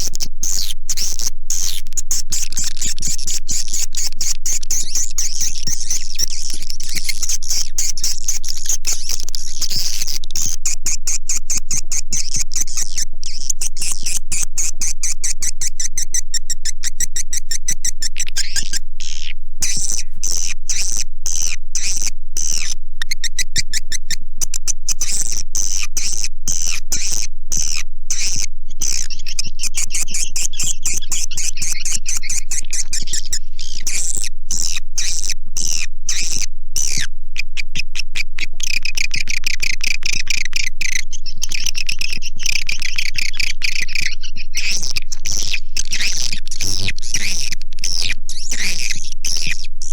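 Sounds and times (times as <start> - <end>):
swiftlets chittering and clicking: 38.6 - 49.9.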